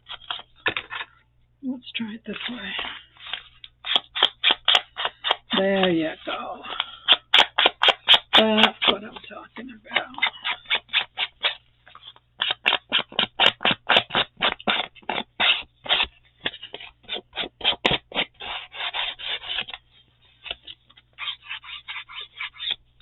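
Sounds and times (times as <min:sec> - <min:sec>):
blending tool scrubbing on paper: 0:02.3 - 0:22.8.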